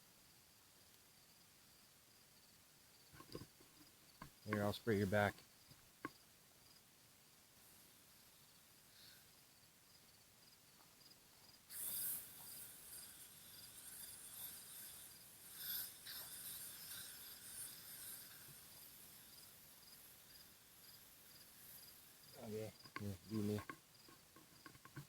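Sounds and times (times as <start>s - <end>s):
cricket chirping: 0.4s - 7.0s, 7.7s - 25.0s
aerosol spray hissing: 11.7s - 23.6s.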